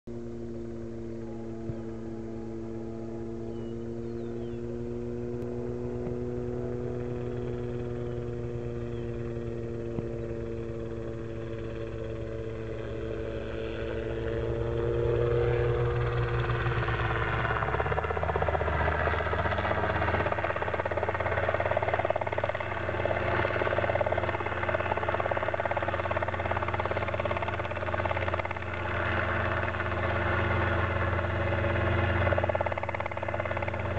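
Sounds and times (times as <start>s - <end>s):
helicopter engine and rotor: 0.1s - 33.9s.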